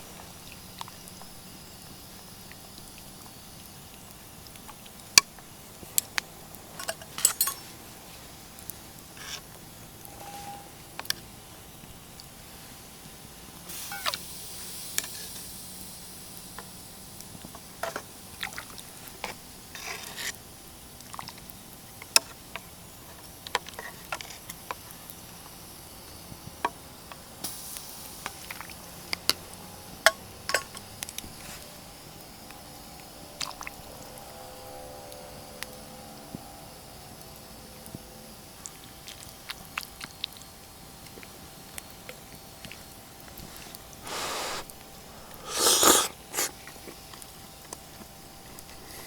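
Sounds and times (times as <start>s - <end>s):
hissing bursts: 43.6s - 46.5s.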